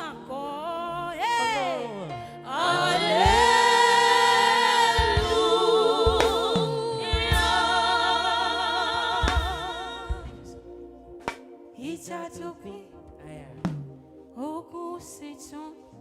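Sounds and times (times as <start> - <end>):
low thuds: 9.2 - 10.6.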